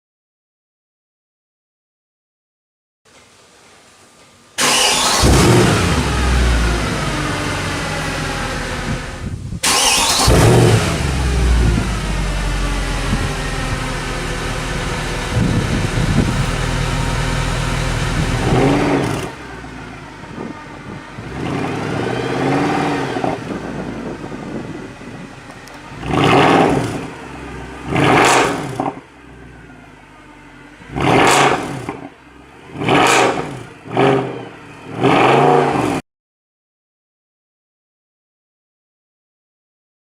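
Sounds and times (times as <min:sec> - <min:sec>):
car engine revving: 0:04.6 - 0:36.0.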